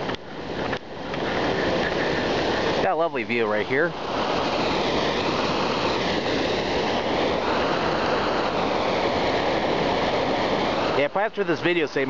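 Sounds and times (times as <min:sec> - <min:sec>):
mountain stream rushing: 0:00.0 - 0:12.0.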